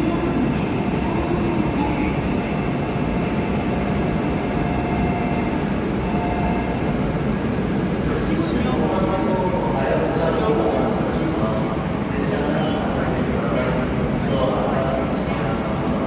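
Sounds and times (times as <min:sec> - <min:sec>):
faint steady tones: 0:00.0 - 0:07.1
train rushing and rumbling: 0:00.0 - 0:16.0.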